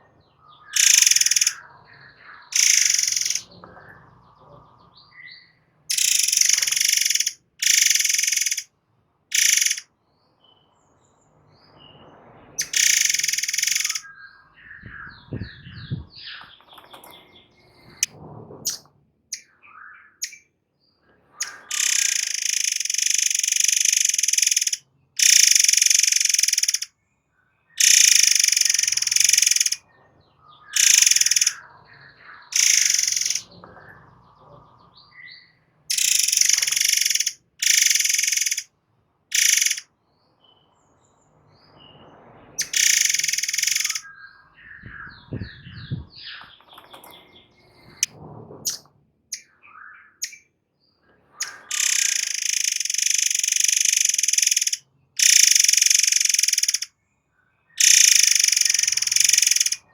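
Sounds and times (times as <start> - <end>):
soft bird calls: 0.0 - 8.7, 9.3 - 10.8, 11.7 - 26.9, 27.7 - 38.7, 39.3 - 40.8, 41.6 - 48.1, 48.7 - 59.9
songbird singing rapid bursts: 0.5 - 4.3, 5.0 - 8.7, 9.3 - 10.6, 12.6 - 18.1, 18.7 - 20.5, 21.4 - 26.9, 27.8 - 29.8, 30.6 - 33.6, 35.1 - 38.7, 39.3 - 39.9, 42.6 - 48.1, 51.4 - 56.9, 57.8 - 59.9.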